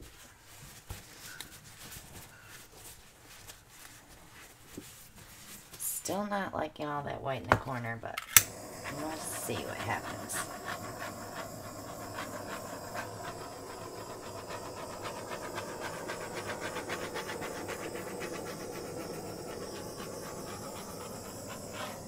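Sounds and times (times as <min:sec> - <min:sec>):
torch flame hissing: 0:08.4 - 0:22.0.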